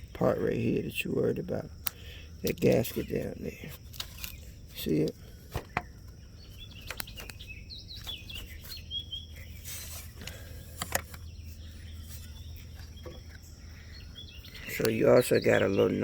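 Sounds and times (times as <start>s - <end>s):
birds chirping: 0.0s - 16.0s
low steady hum: 0.0s - 16.0s
sharp clicks: 6.8s - 7.4s.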